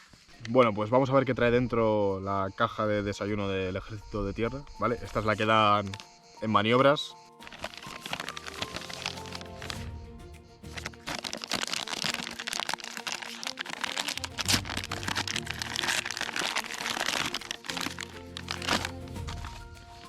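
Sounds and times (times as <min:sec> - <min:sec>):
plastic wrapping crinkling: 0:07.4 - 0:10.0, 0:10.7 - 0:20.0
plastic snapping: 0:10.7 - 0:19.5.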